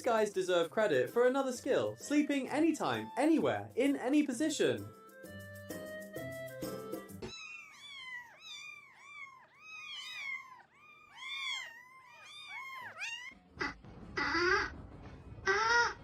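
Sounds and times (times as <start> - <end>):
louder lower animal call: 13.6 - 14.7, 15.4 - 16.0.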